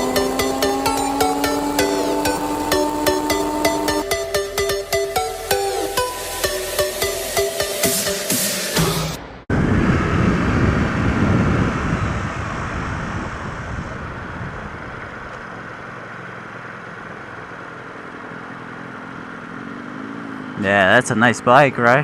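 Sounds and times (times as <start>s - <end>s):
motorcycle engine: 0.0s - 22.0s
wind noise on microphone: 9.5s - 15.3s.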